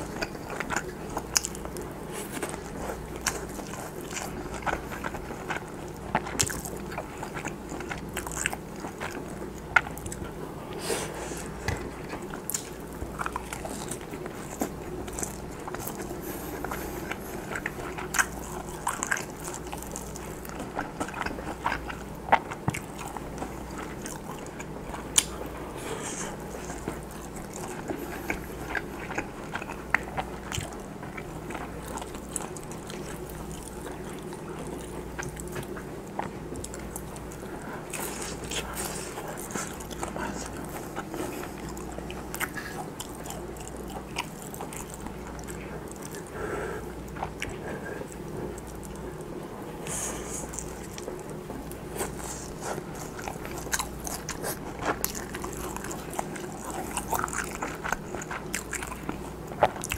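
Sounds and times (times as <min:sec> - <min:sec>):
person chewing with mouth clicks: 0:00.0 - 0:59.9.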